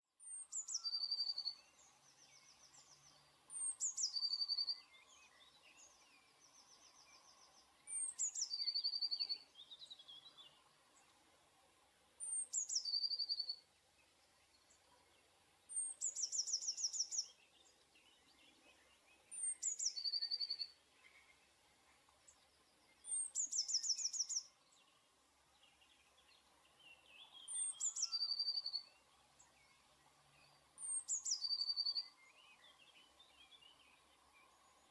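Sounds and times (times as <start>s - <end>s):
faint chirps of other birds: 0.0s - 34.9s
bird singing with trill: 0.2s - 10.6s, 12.2s - 13.6s, 15.7s - 21.4s, 23.0s - 24.9s, 25.6s - 29.0s, 30.4s - 34.9s.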